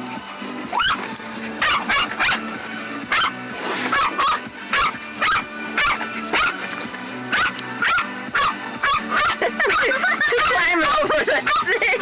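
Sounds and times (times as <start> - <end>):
dog barking: 0.8 - 1.0, 1.6 - 2.4, 3.1 - 6.6, 7.3 - 10.6, 11.3 - 11.7.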